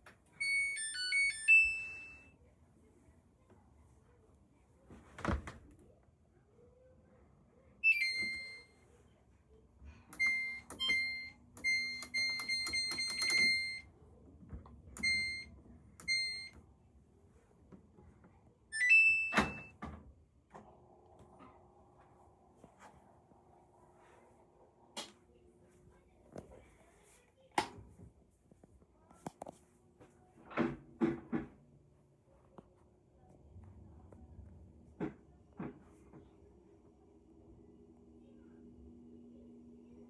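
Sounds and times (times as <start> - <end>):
washing machine button beeps: 0.4 - 2.3, 7.8 - 8.8, 10.1 - 13.9, 15.0 - 16.6, 18.7 - 19.8.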